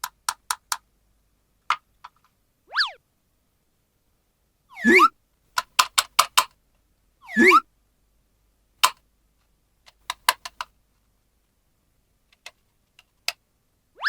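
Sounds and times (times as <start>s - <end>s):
plastic toy pieces clicking: 0.0s - 0.8s, 5.6s - 6.5s, 8.8s - 9.0s, 9.9s - 10.7s.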